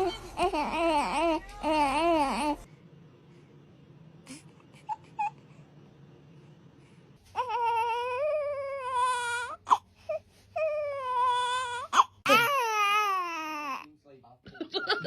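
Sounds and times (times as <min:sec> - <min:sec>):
newborn baby crying: 0:00.0 - 0:02.7, 0:07.4 - 0:13.9.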